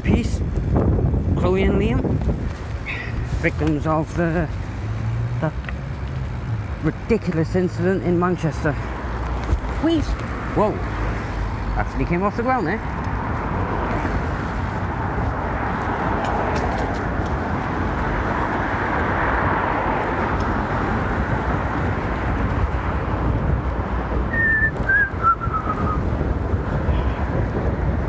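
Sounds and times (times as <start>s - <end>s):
wind buffeting microphone: 0.0s - 4.9s, 12.8s - 28.0s
bicycle rolling noise: 13.0s - 25.0s
whistled notes stepping down: 24.3s - 25.9s.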